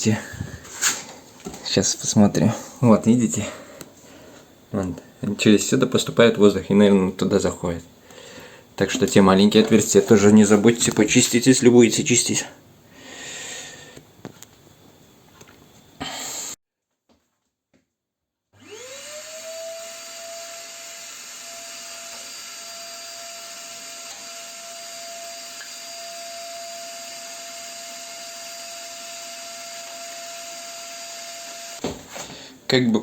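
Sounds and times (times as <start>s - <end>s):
vacuum cleaner motor whine: 18.6s - 31.8s.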